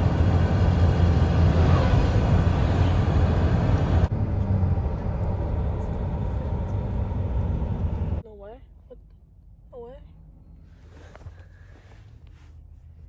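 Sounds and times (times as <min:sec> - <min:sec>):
truck diesel engine rumbling: 0:00.0 - 0:08.6.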